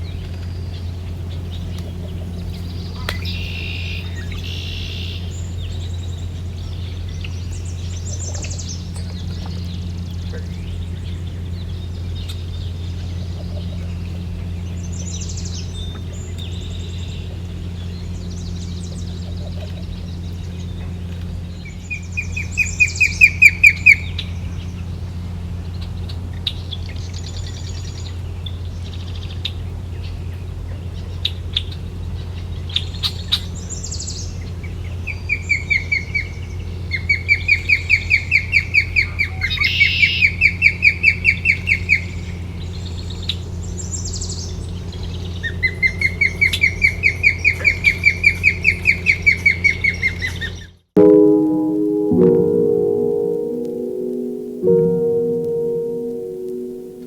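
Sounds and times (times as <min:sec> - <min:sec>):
bird chirping: 0:03.0 - 0:05.8.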